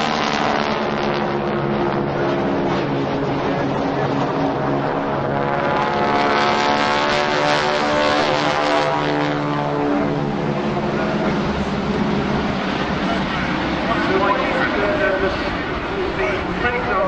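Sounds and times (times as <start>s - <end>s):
propeller aircraft flying past: 0.0s - 17.0s.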